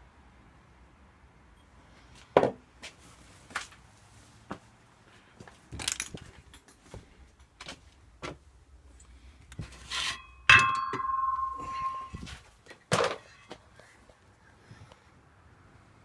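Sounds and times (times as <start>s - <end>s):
sharp metallic clang: 10.0s - 12.4s.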